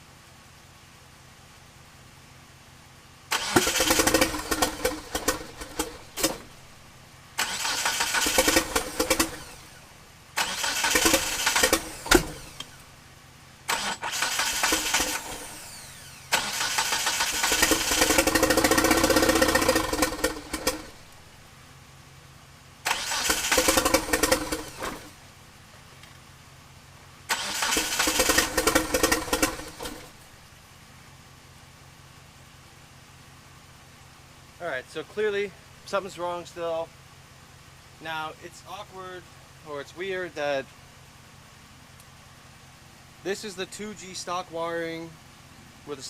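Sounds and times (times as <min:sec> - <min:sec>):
car engine cranking by starter: 0:03.2 - 0:13.0, 0:13.6 - 0:21.4, 0:22.8 - 0:25.4, 0:27.2 - 0:30.4.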